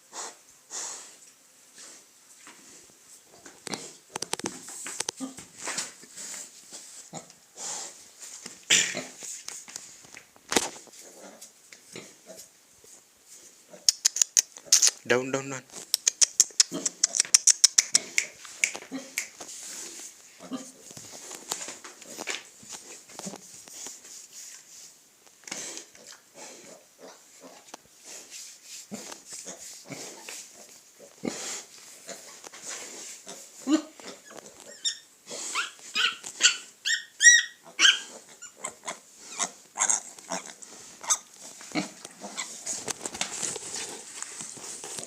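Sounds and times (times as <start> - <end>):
piglets grunting and snuffling: 0.0 - 1.2, 5.1 - 8.0, 8.6 - 9.2, 10.9 - 12.5, 16.0 - 23.5, 25.4 - 45.0
piglets squealing: 34.1 - 40.5.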